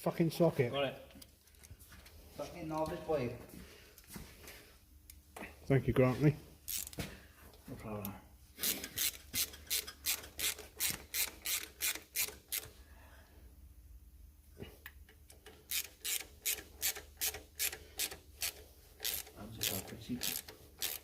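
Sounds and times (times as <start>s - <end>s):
hand ratchet rasping: 6.7s - 7.0s, 8.6s - 12.8s, 15.2s - 21.0s.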